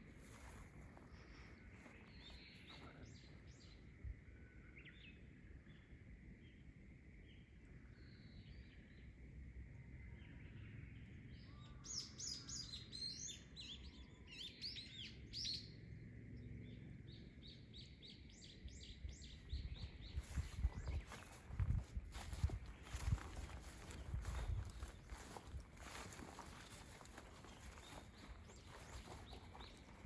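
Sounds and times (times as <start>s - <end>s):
small birds chirping: 0.0s - 3.9s, 16.6s - 30.0s.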